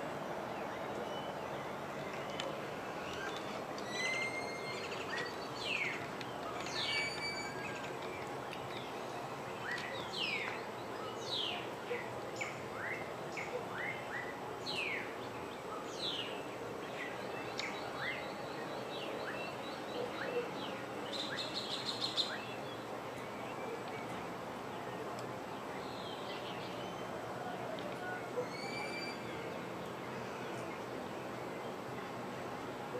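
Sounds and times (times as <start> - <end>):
steady background hiss: 0.0 - 32.9
birds whistling: 3.1 - 6.0, 6.6 - 7.9, 28.4 - 29.5.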